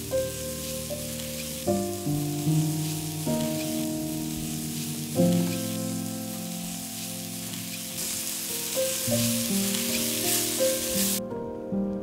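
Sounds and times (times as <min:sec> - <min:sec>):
mushrooms sizzling in frying pan: 0:00.0 - 0:11.2
instrumental background music: 0:00.0 - 0:12.0
spatula stirring in pan: 0:02.6 - 0:11.2.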